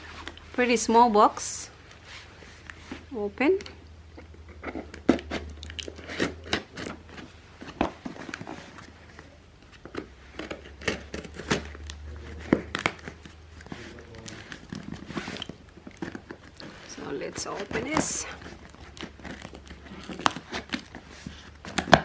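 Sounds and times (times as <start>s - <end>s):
packaging tearing and crinkling: 10.4s - 22.0s.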